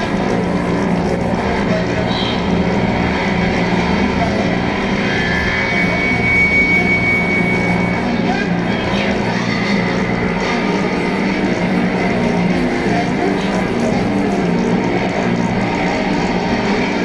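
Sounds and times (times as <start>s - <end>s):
dense grinding noise: 0.0s - 17.0s
low droning hum: 0.0s - 17.0s
thin high whistling tone: 5.0s - 8.4s.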